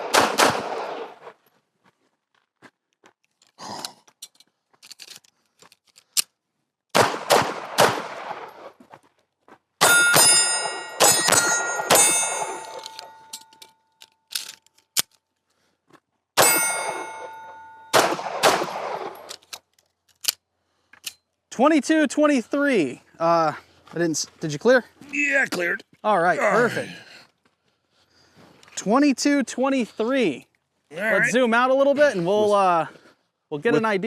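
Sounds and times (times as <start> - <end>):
pistol shots: 0.0 - 1.3, 6.9 - 8.7, 9.8 - 13.0, 17.9 - 19.3
steel targets ringing: 9.8 - 13.6, 16.4 - 18.1.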